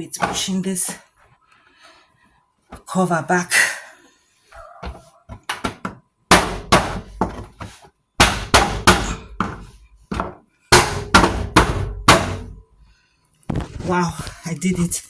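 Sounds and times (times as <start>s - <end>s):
plastic cover knocked into place: 13.5s - 14.0s.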